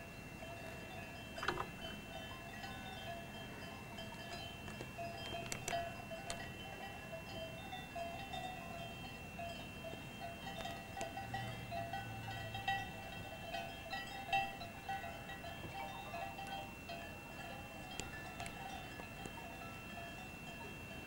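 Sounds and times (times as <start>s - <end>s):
bells ringing: 0.0s - 21.0s.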